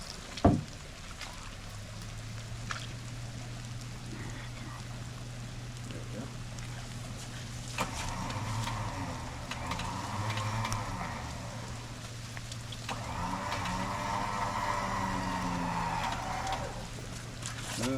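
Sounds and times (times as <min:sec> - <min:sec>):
vehicle engine idling: 0:00.0 - 0:17.9
rough high-pitched whir: 0:07.7 - 0:17.9.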